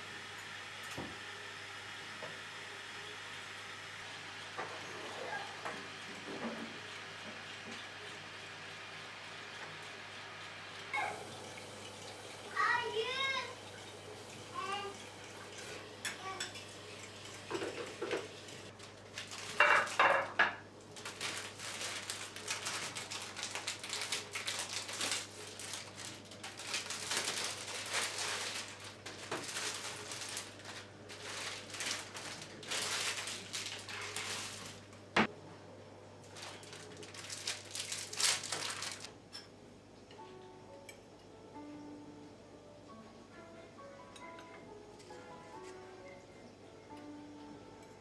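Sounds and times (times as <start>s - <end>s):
dishes and cutlery clattering: 14.9s - 18.3s, 19.4s - 21.9s.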